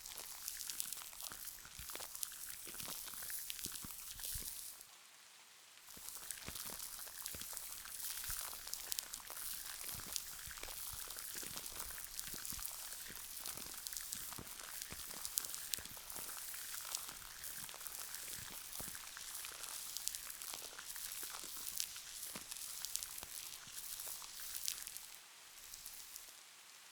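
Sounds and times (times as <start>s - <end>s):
soft rain hiss: 0.0s - 26.9s
wet crackling clicks of gel: 5.8s - 26.3s.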